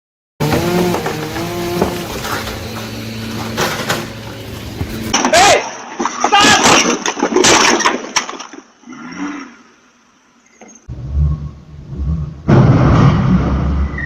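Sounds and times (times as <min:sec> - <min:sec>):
low engine rumble: 0:00.4 - 0:05.2
vehicle crash crunching: 0:00.4 - 0:08.8, 0:12.4 - 0:14.0.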